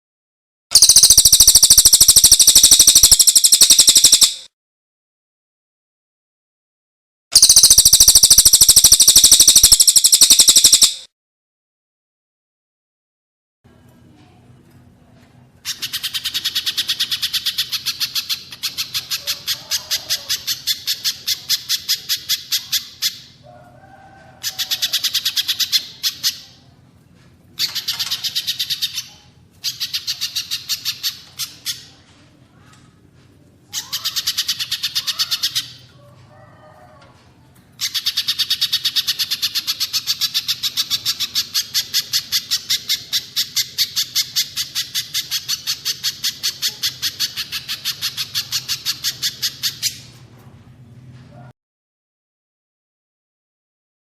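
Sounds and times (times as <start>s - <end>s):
bird repeating fast high notes: 0.7s - 4.5s, 7.4s - 11.1s.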